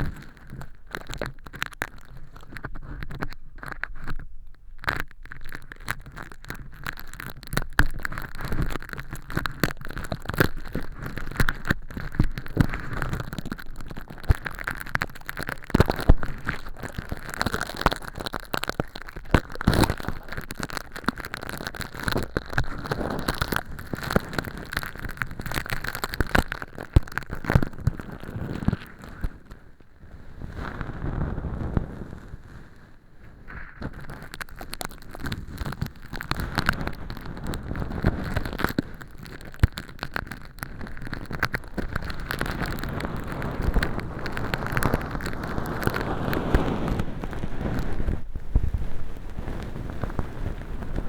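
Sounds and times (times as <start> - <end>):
tweezers crackling plastic film: 4.8 - 28.0.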